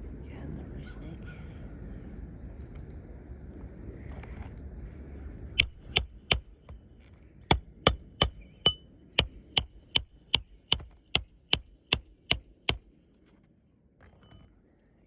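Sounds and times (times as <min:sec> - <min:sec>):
hammer striking metal: 0:05.6 - 0:06.8, 0:07.5 - 0:13.0.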